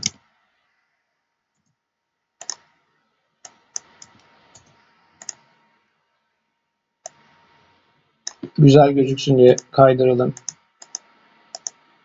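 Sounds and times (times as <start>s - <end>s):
computer mouse clicking: 0.0s - 0.2s, 2.4s - 2.8s, 3.4s - 5.6s, 7.0s - 7.4s, 8.3s - 8.6s, 10.3s - 11.8s.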